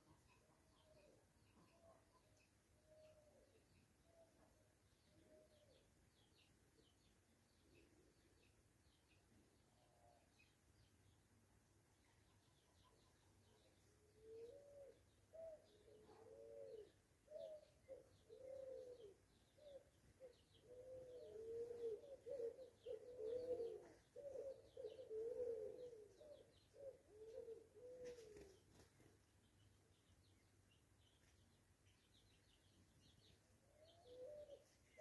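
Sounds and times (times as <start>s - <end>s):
soft cooing bird calls: 0.0s - 10.6s, 12.0s - 29.2s, 31.0s - 35.0s
high chirps of small birds: 12.2s - 35.0s.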